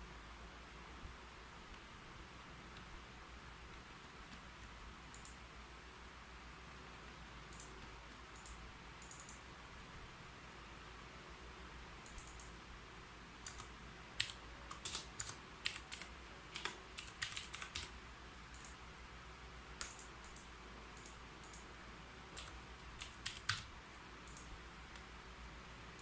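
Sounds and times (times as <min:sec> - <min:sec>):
typing on a keyboard: 0:07.6 - 0:09.4, 0:12.1 - 0:12.5, 0:13.4 - 0:17.9, 0:19.8 - 0:21.7, 0:22.4 - 0:24.5.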